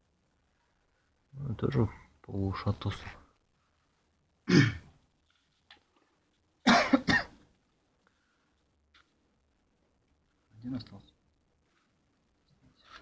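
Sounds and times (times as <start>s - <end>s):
man coughing: 4.5s - 4.9s, 6.6s - 7.4s.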